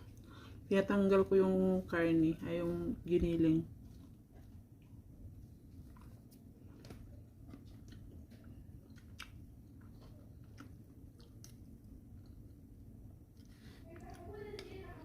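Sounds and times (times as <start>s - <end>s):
low steady hum: 0.0s - 15.0s
chewing: 3.8s - 5.0s, 5.7s - 12.7s, 13.3s - 15.0s.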